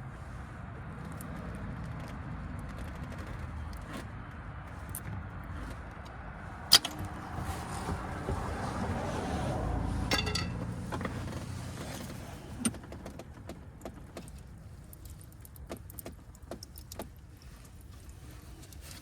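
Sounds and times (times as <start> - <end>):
metal clinking: 10.0 - 10.9
light clicks and knocks: 10.1 - 19.0.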